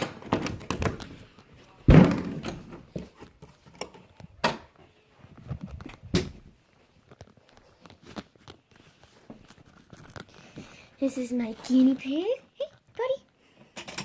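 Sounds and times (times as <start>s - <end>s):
footsteps and handling knocks: 0.0s - 9.8s.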